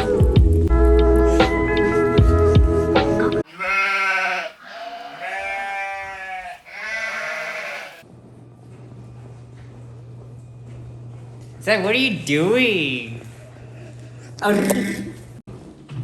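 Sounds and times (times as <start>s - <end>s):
long wavering bleats: 3.5s - 8.0s.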